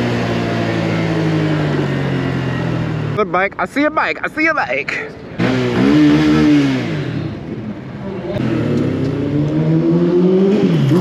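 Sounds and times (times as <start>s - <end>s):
small engine revving: 5.4s - 7.6s, 8.4s - 11.0s.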